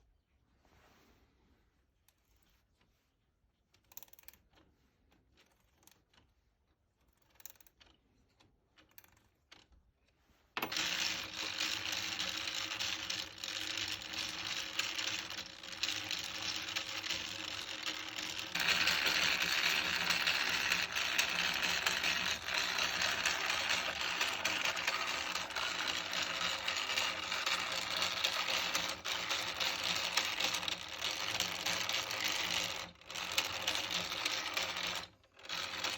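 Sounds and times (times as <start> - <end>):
clockwork clicks: 10.6 - 35.9
clockwork gears clattering: 10.6 - 35.9.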